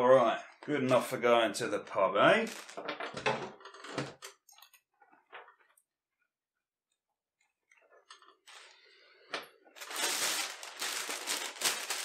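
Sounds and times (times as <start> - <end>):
newspaper rustling and crinkling: 2.5 - 3.0, 9.8 - 12.0.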